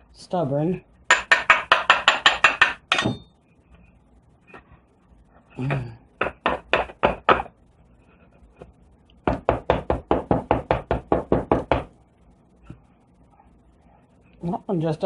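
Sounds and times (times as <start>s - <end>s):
mold knocking on hard surface: 6.2s - 7.5s, 9.2s - 11.9s.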